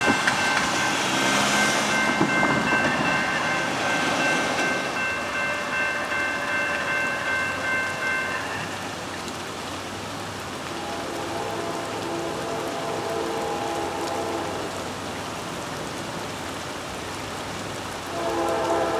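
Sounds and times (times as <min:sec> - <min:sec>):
high ringing tone: 0:00.0 - 0:08.8
train wheels rushing on rail: 0:00.0 - 0:09.1.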